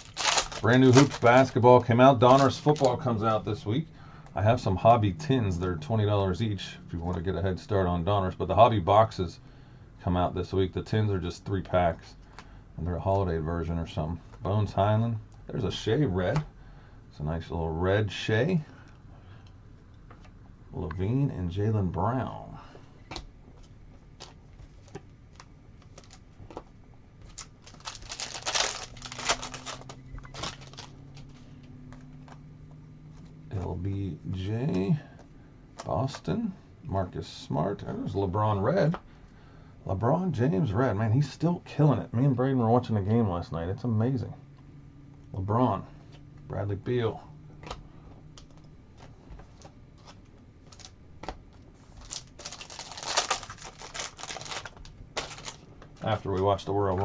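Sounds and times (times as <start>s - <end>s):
cards being flipped: 0.0s - 3.0s, 27.2s - 32.4s
packaging rustling and crinkling: 0.0s - 3.3s, 23.6s - 31.5s, 48.4s - 56.6s
low steady hum: 0.0s - 57.0s.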